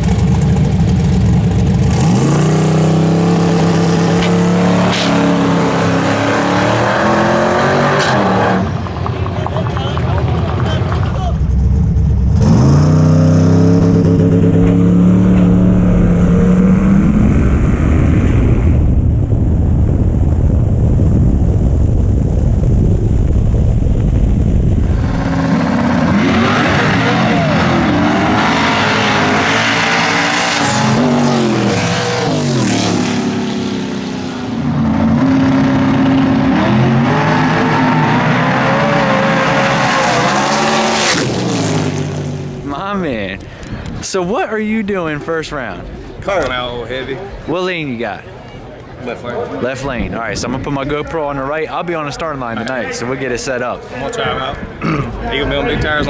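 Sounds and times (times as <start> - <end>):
race car engine revving: 0.0 - 19.1, 24.1 - 44.0.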